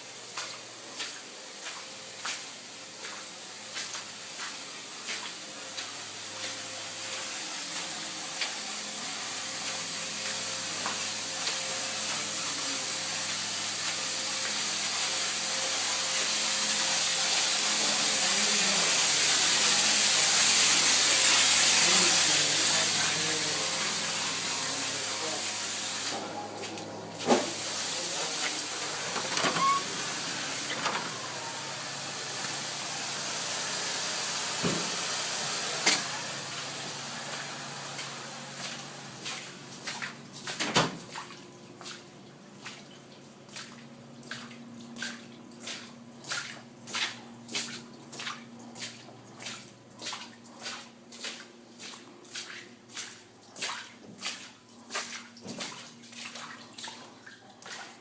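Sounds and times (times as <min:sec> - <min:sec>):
water spraying hiss: 0:03.6 - 0:26.3, 0:27.2 - 0:39.3.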